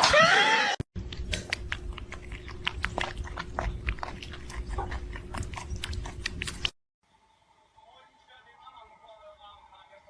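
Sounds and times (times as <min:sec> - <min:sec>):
pet chewing and crunching: 0:01.0 - 0:06.8.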